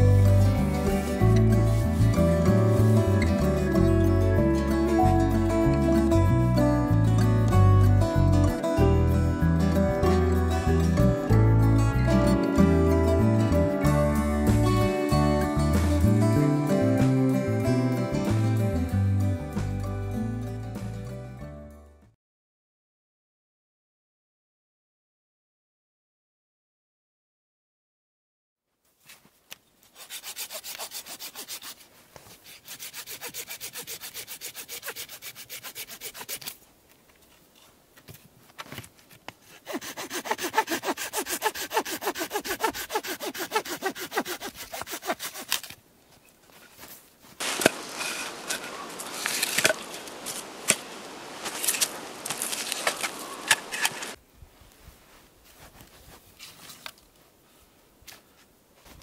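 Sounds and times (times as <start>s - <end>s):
hand saw cutting branches: 29.9s - 36.6s, 39.4s - 45.8s, 47.4s - 54.2s.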